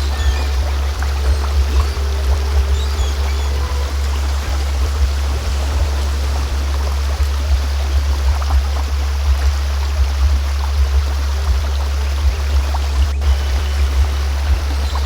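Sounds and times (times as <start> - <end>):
flowing stream: 0.0 - 15.0
steady low-pitched hum: 0.0 - 15.0.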